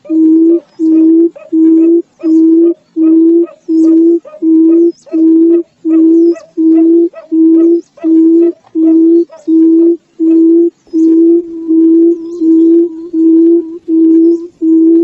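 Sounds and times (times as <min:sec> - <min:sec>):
bird low hooting call: 0:00.0 - 0:15.0.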